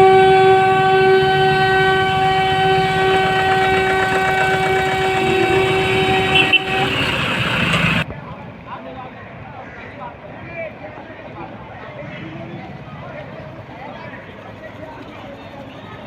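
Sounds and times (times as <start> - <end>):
vehicle horn long note: 0.0 - 8.0
low engine rumble: 0.0 - 8.1.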